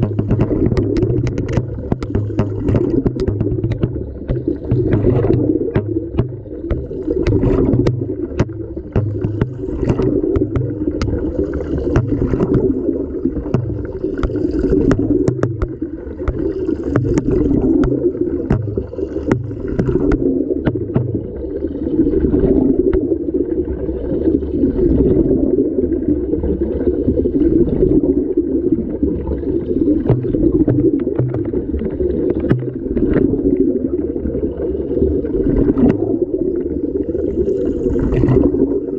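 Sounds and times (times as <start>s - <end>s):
clicks and knocks: 0.0s - 12.7s
muffled water sloshing: 0.0s - 38.9s.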